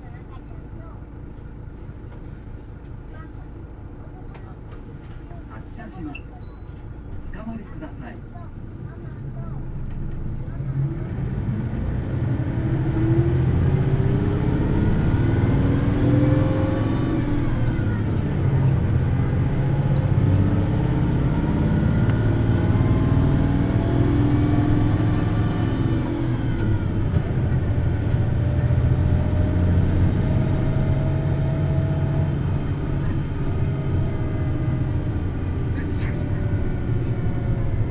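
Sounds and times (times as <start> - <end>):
bus diesel engine revving: 10.0 - 37.9.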